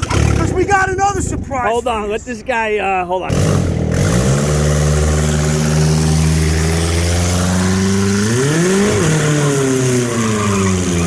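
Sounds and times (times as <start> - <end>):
car engine revving: 0.0 - 0.8, 3.3 - 11.0.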